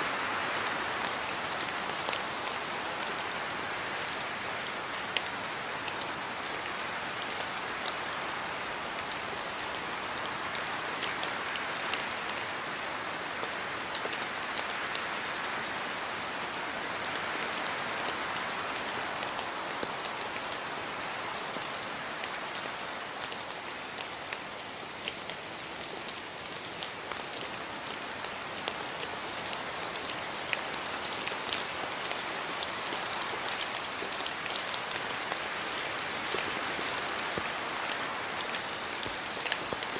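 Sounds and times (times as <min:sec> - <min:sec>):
steady rain hiss: 0:00.0 - 0:39.9
raindrops clicking on surface: 0:22.2 - 0:39.9.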